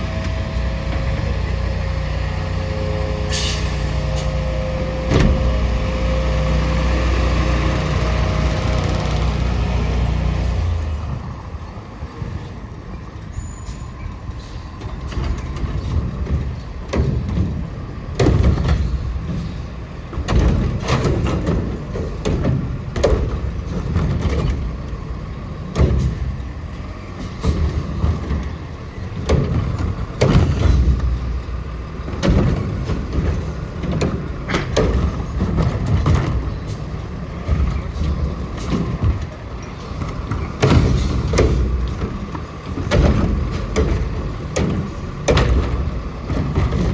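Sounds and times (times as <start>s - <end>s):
diesel engine rumbling: 0.0s - 46.9s
bangs and thumps: 40.0s - 46.9s.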